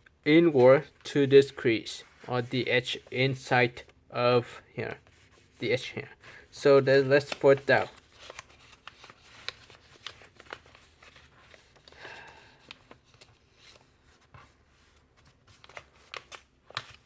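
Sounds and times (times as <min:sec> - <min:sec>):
paper rustling and crinkling: 0:06.6 - 0:17.0.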